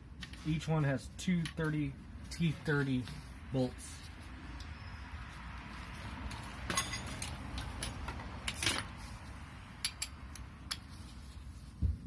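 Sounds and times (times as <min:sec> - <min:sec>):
hand tools clinking: 0:06.3 - 0:08.9.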